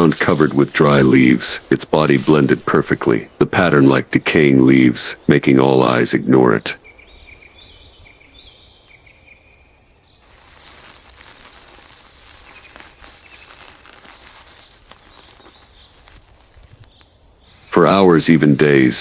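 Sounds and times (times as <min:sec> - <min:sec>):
high insect hiss: 0:00.0 - 0:03.2, 0:10.2 - 0:18.9
bird chirps: 0:04.8 - 0:19.0.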